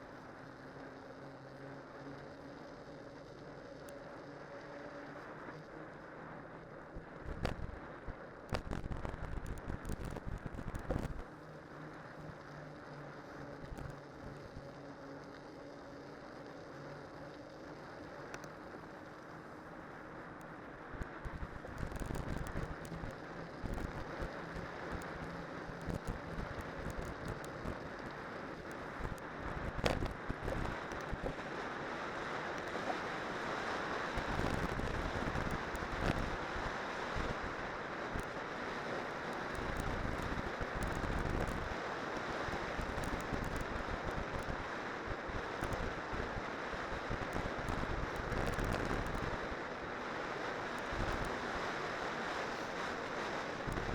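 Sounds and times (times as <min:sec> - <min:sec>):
wind rumbling on microphone: 0:07.0 - 0:11.3, 0:21.0 - 0:53.9
steady rushing noise: 0:18.6 - 0:53.9.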